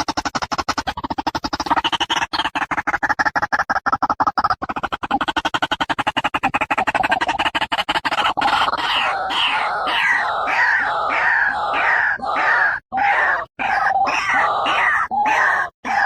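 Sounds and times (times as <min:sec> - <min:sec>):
bird clicking chatter: 0:00.0 - 0:12.4
bird harsh falling croaks: 0:08.1 - 0:16.0.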